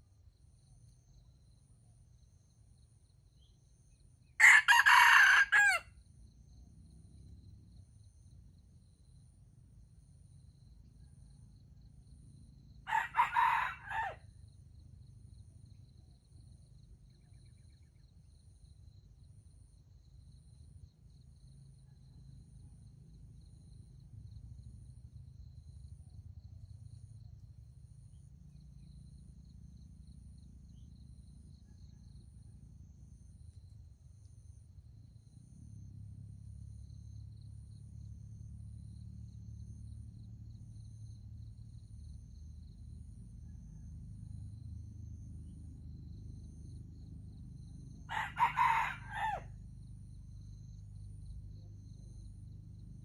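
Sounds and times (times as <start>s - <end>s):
rooster crowing: 4.4s - 5.9s, 12.9s - 14.2s, 48.1s - 49.6s
faint low rumble: 14.2s - 48.2s, 49.5s - 53.0s.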